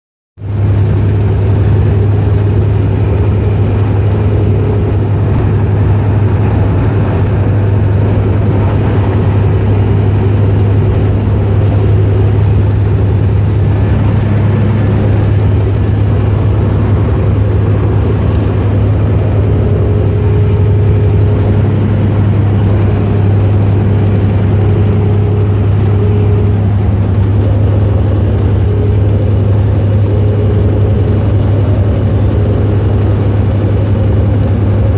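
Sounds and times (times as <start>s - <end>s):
truck diesel engine drone: 0.4s - 34.9s
turbocharger high whistle: 11.7s - 34.9s.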